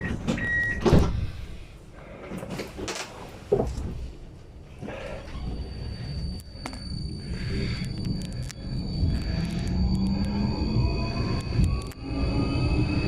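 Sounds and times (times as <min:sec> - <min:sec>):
tram low rumble: 0:00.0 - 0:13.0
steady high whine: 0:04.4 - 0:13.0.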